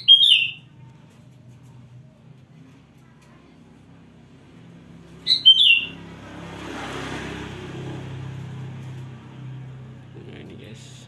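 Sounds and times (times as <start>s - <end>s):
bird chirping loudly: 0.0s - 0.7s, 5.2s - 6.0s.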